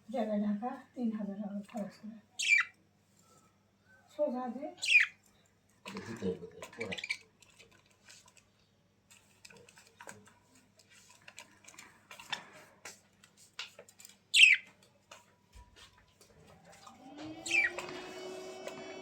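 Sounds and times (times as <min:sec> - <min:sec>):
pet bird squawks: 0:02.4 - 0:02.7, 0:04.8 - 0:05.1, 0:14.4 - 0:14.6, 0:17.4 - 0:17.7
light tapping and rustling: 0:09.1 - 0:17.0
machine hum: 0:16.9 - 0:19.0.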